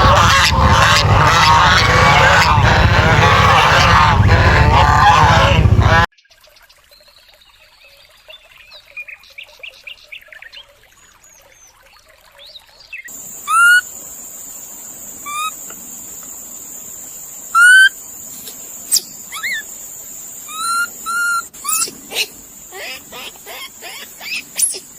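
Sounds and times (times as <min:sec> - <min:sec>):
upward-sweeping animal calls: 0:00.0 - 0:06.1, 0:13.2 - 0:14.3, 0:15.0 - 0:16.5, 0:17.4 - 0:24.9
faint chirping: 0:13.1 - 0:24.9
steady high-pitched hiss: 0:13.1 - 0:24.9.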